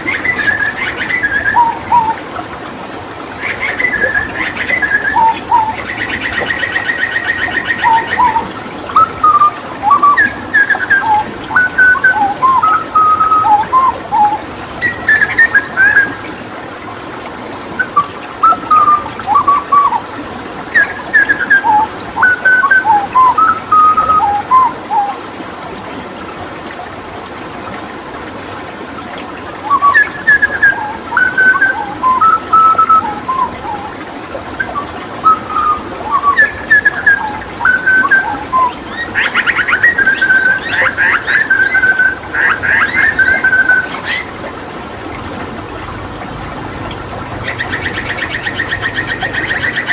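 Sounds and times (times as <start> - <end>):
bird singing whistled notes: 0.1 - 2.2, 3.4 - 16.2, 17.8 - 20.0, 20.7 - 25.2, 29.6 - 34.0, 34.6 - 44.3, 47.4 - 49.9.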